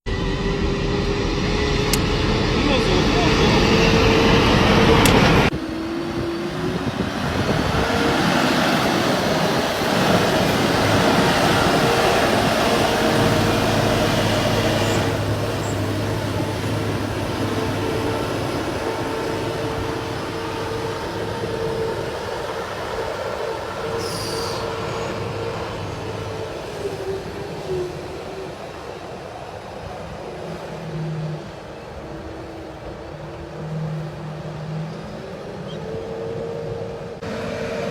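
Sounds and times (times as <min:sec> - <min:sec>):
high whine: 0:00.0 - 0:37.9
road noise: 0:00.0 - 0:37.9
diesel truck engine running: 0:00.2 - 0:27.6.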